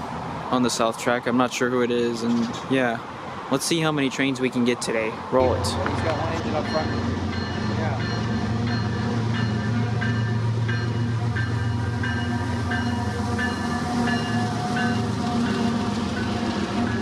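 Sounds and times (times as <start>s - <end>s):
diesel locomotive engine drone: 5.0s - 17.0s.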